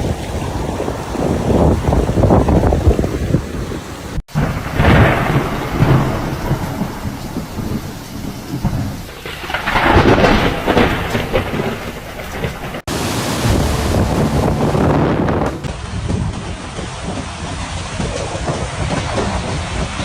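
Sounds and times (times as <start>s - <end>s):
heavy rain and wind: 0.0s - 20.0s
low rumbling: 4.3s - 16.6s.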